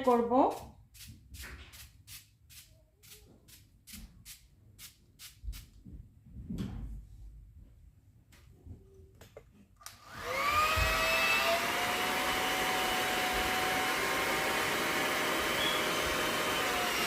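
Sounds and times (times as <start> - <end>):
hair dryer brush blowing: 9.9 - 17.0.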